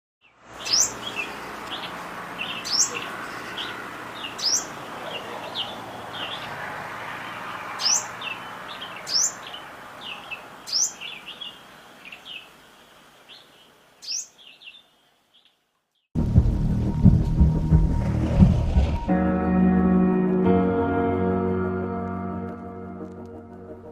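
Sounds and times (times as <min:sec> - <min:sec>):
small birds calling: 0:00.2 - 0:16.1
steady background hiss: 0:09.7 - 0:15.6.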